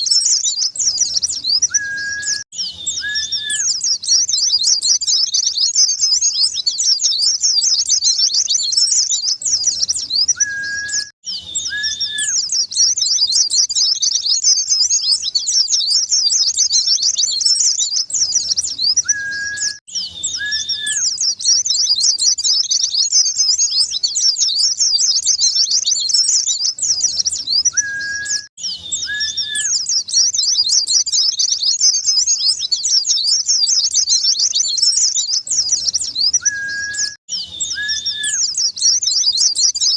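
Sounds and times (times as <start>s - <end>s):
rapid high bird twittering: 0.0s - 39.9s.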